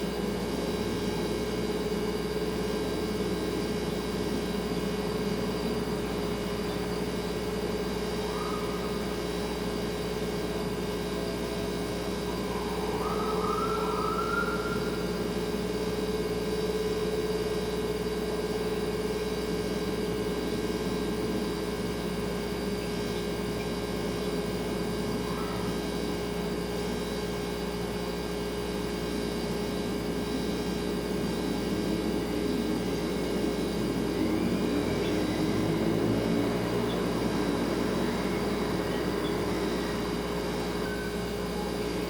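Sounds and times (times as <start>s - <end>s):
refrigerator humming: 0.0s - 42.0s
faint rising wails: 11.3s - 15.6s.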